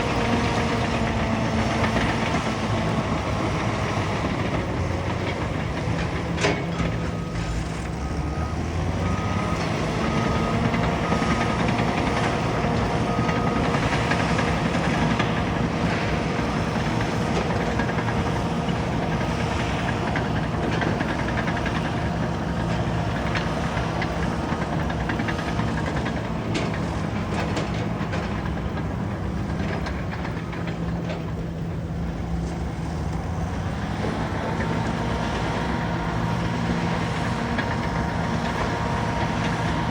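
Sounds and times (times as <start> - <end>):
bulldozer diesel engine running: 0.0 - 39.9
reversing alarm beeping: 0.2 - 16.2.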